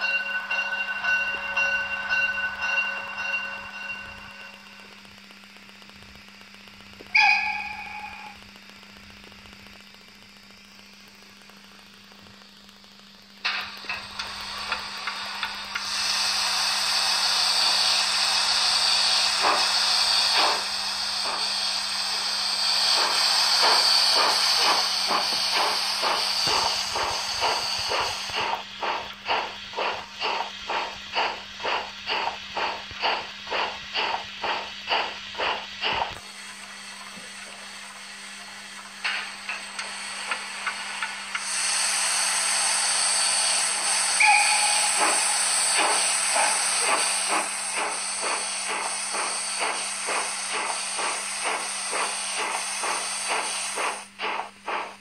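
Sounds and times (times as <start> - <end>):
steam locomotive chuffs: 0.0 - 5.9, 7.0 - 9.4, 12.8 - 55.0
steady low hum: 0.0 - 55.0
steam hiss from small speaker: 2.9 - 55.0
short whistle-like tone: 7.2 - 8.4, 44.1 - 46.5.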